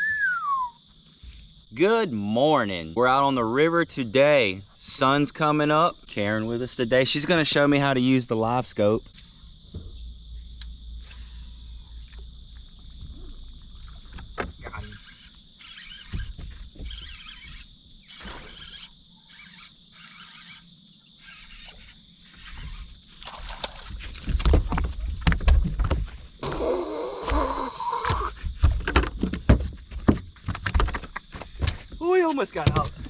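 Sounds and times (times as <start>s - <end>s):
high insect buzz: 0.0s - 33.0s
knocks and bumps on boat: 9.6s - 10.6s, 11.9s - 15.1s, 16.0s - 17.6s, 23.8s - 26.4s, 28.2s - 33.0s
water sloshing: 21.8s - 26.6s.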